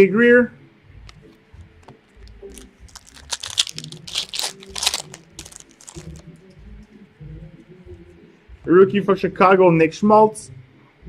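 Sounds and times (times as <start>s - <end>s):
wrapper tearing and crinkling: 2.3s - 6.2s.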